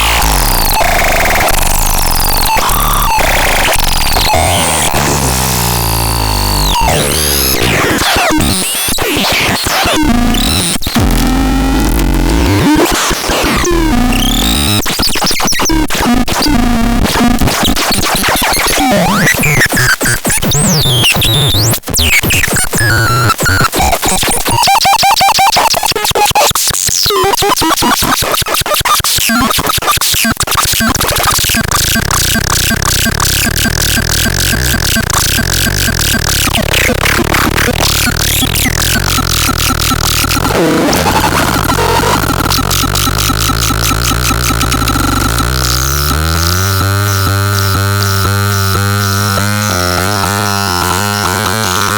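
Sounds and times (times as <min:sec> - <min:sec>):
pulsing high buzz: 0:00.0 - 0:07.7, 0:30.8 - 0:51.9
synthesizer glides and buzzing: 0:00.0 - 0:14.9, 0:30.1 - 0:51.9.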